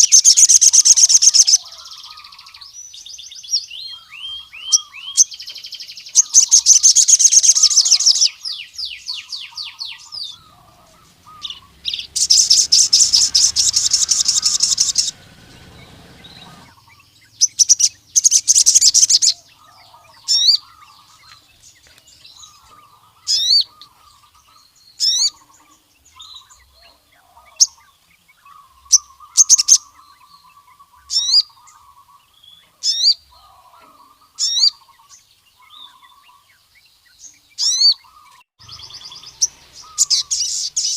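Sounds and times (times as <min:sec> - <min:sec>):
bird singing fast high trills: 0:00.0 - 0:36.5, 0:37.6 - 0:40.9
soft low twittering: 0:09.7 - 0:21.6.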